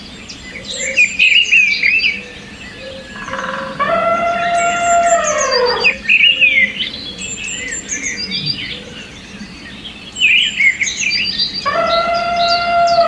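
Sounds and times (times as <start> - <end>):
birds chirping and trilling: 0.0 - 13.0
long downward sliding call: 3.2 - 6.0, 11.7 - 13.0.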